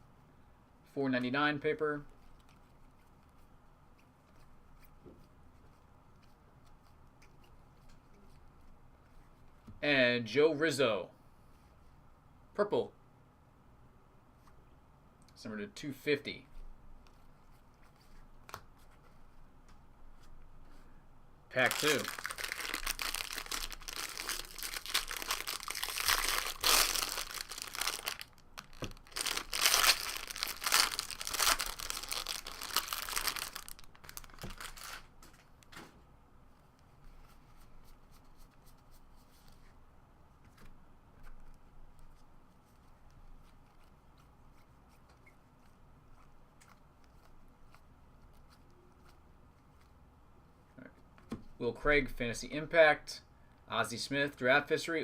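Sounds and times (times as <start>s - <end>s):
wrapper tearing and crinkling: 21.6s - 35.4s.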